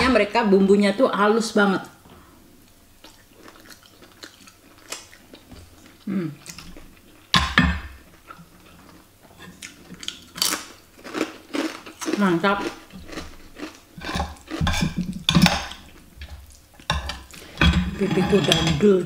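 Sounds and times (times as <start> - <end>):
person chewing food: 2.6 - 17.6.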